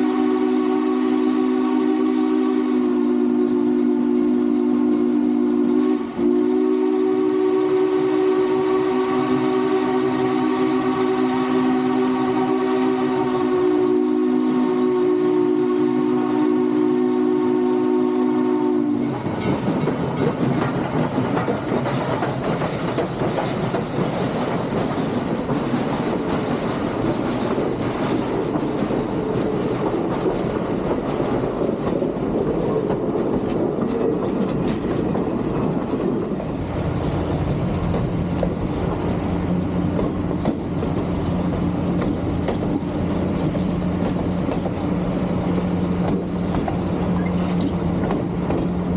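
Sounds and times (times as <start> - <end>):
train whistle: 0.0 - 19.4
train wheels clattering on rails: 18.8 - 48.9.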